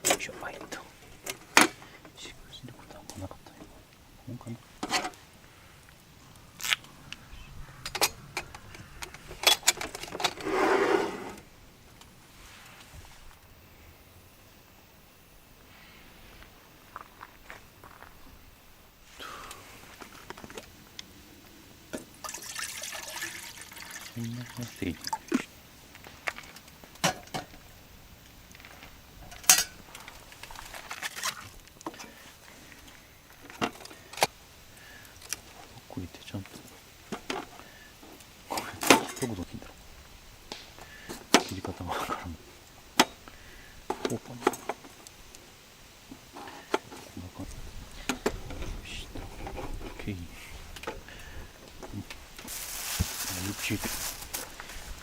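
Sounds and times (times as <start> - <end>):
rustling: 0.0 - 13.8, 25.3 - 55.0.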